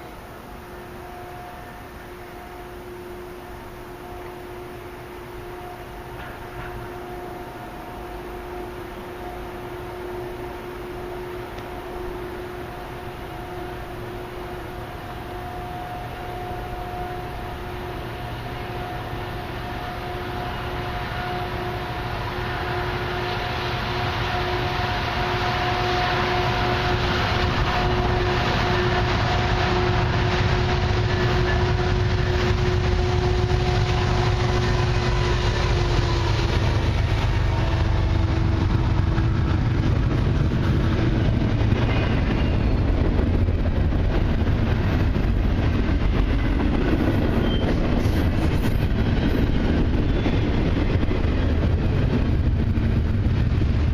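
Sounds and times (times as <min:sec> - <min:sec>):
freight train rumbling past: 0:00.0 - 0:53.9.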